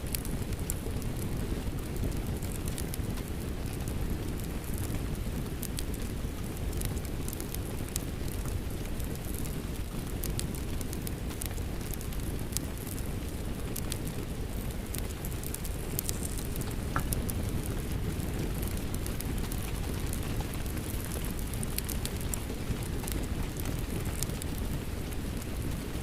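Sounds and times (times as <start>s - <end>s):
steady rain: 0.0s - 26.0s
wood fire crackling: 0.0s - 26.0s.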